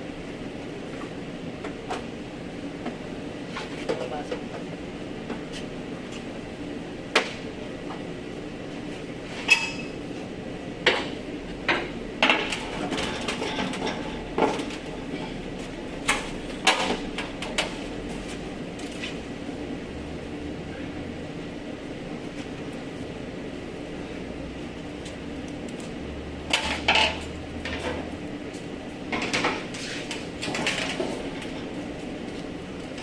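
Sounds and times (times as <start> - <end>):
workshop hum: 0.0 - 33.0.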